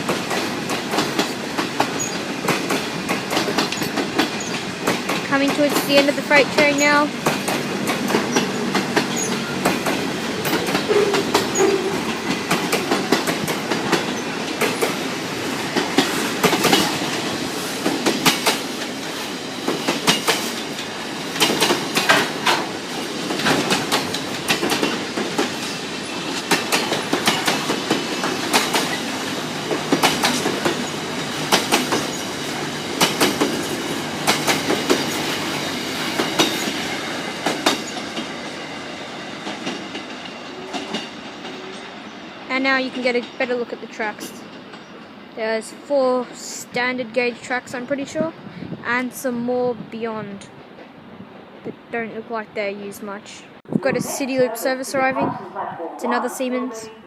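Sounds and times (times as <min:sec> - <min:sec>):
train wheels clattering over rail joints: 0:00.0 - 0:38.4
freight train rumble: 0:00.0 - 0:57.0.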